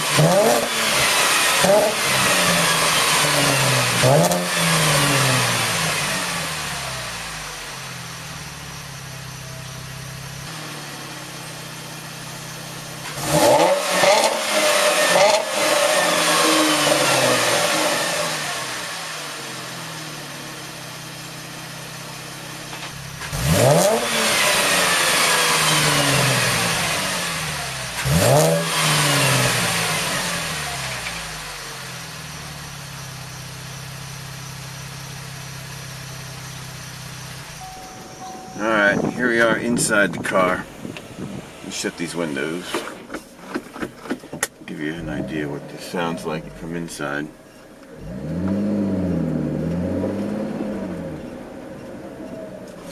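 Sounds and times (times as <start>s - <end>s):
car engine idling: 0.0s - 52.9s
car engine revving: 0.0s - 52.9s.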